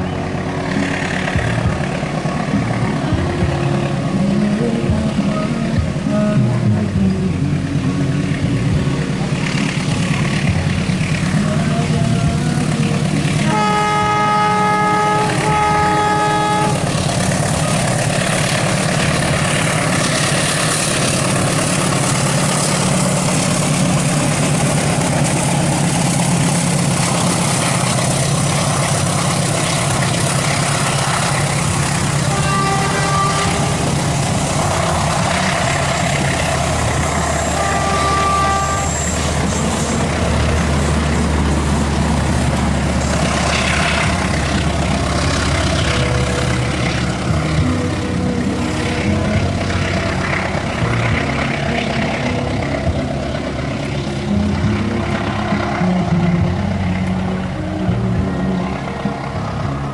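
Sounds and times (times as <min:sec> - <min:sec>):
train engine and wheels rumbling: 0:00.0 - 0:59.9
train horn blasts: 0:13.2 - 0:54.1.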